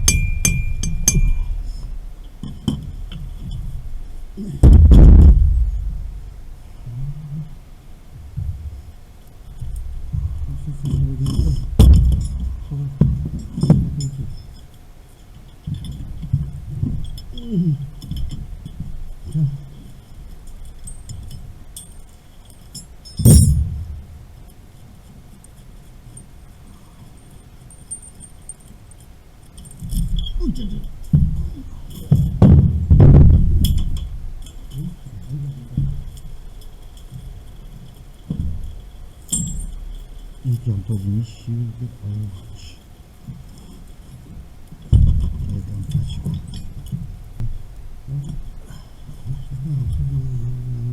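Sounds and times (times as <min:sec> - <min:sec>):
metal tools clinking and knocking: 0:00.0 - 0:04.3, 0:10.6 - 0:14.8, 0:15.4 - 0:23.8, 0:33.5 - 0:40.6.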